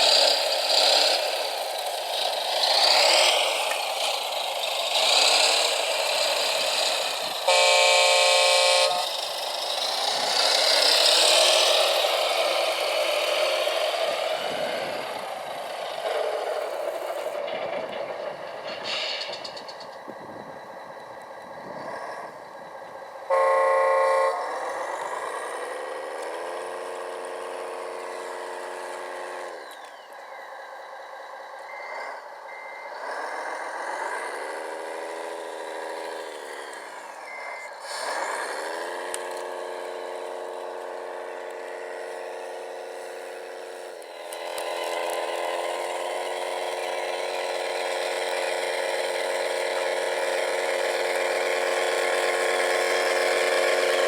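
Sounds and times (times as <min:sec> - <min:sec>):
model truck motor whine: 0:00.0 - 0:54.0
model truck horn toot: 0:05.0 - 0:12.4, 0:23.2 - 0:28.5.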